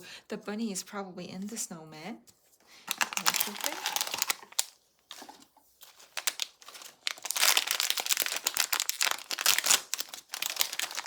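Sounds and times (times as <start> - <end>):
wrapper crinkling being torn: 2.9 - 11.0.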